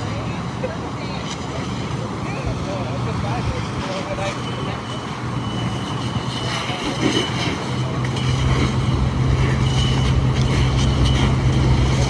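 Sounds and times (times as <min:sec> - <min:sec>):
vehicle running hum: 0:00.0 - 0:12.0
wind on microphone: 0:02.4 - 0:12.0.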